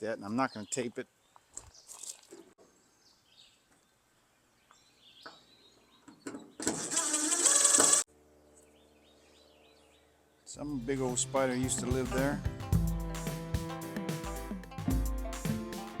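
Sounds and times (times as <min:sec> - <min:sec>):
power drill running: 0:06.6 - 0:08.1.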